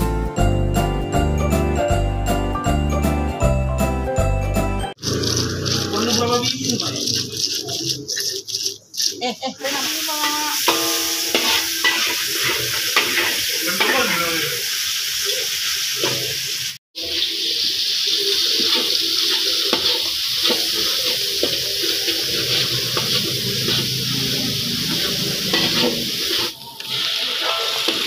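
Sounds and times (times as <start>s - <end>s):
onion sizzling in a wok: 5.0s - 28.0s
metal spoon scraping a wok: 10.2s - 14.0s, 18.6s - 28.0s.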